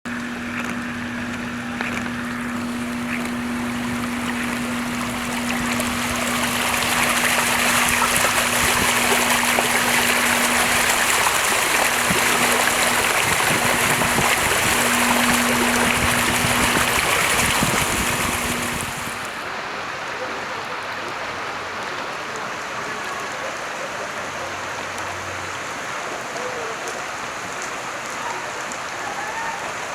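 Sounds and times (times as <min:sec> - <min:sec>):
low hum: 0:00.1 - 0:19.4
floodwater rushing: 0:00.1 - 0:20.2
rain: 0:00.1 - 0:29.9.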